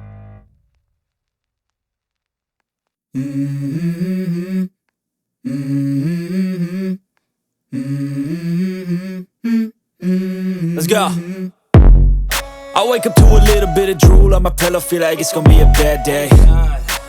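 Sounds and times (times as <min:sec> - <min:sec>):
wordless hummed vocal: 0:05.5 - 0:07.0, 0:07.7 - 0:11.6, 0:12.7 - 0:17.0.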